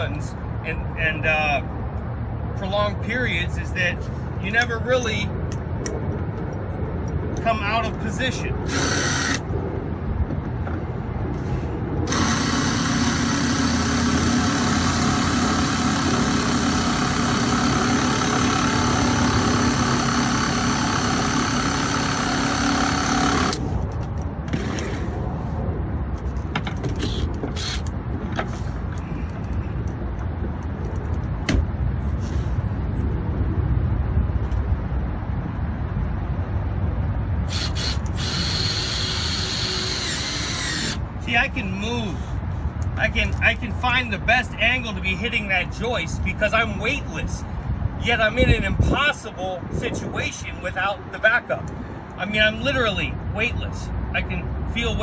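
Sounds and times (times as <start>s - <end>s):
power drill running: 8.7s - 9.4s, 12.1s - 23.6s, 27.1s - 27.9s, 37.5s - 41.0s.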